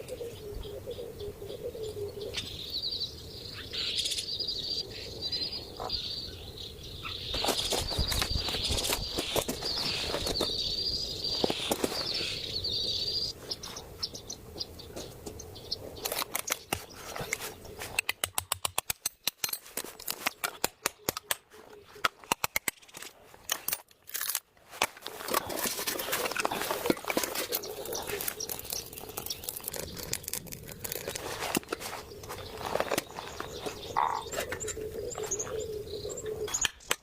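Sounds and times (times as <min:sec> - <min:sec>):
rustle: 0:07.1 - 0:18.0, 0:24.7 - 0:34.6
sharp clicks and taps: 0:16.1 - 0:23.1
insect chirring: 0:26.5 - 0:31.4.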